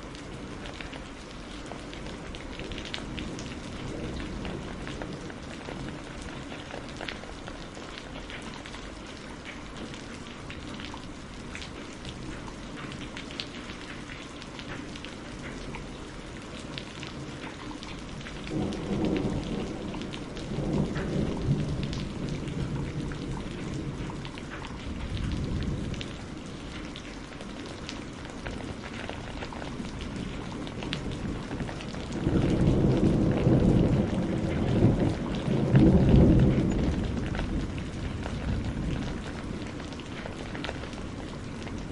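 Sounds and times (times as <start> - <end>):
rain drops striking a surface: 0.0 - 41.9
thunder rumbling: 1.9 - 9.0, 16.6 - 41.9.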